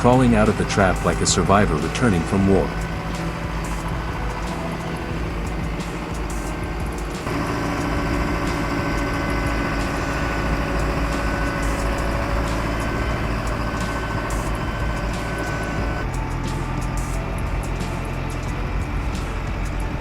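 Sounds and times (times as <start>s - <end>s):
heavy vehicle engine running: 0.0s - 20.0s.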